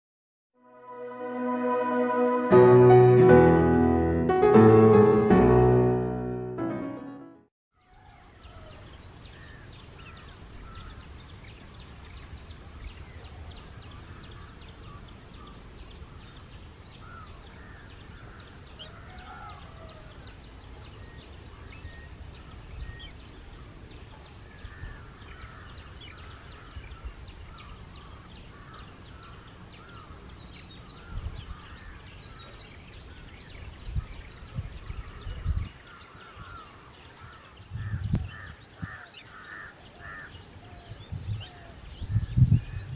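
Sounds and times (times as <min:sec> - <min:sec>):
birds calling: 0:13.1 - 0:42.9.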